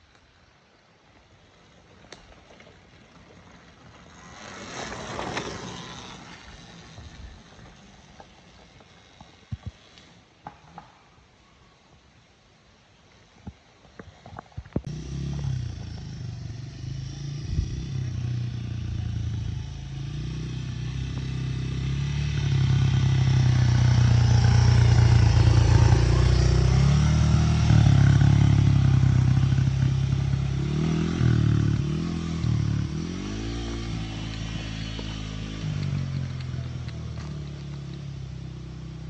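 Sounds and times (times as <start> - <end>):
dirt bike engine revving: 4.0 - 7.8, 14.9 - 39.0.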